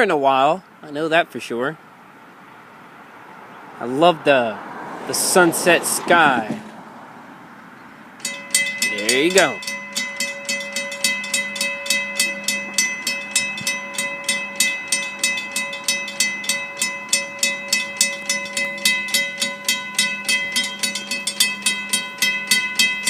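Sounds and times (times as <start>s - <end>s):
crossing bell ringing: 8.2s - 23.0s.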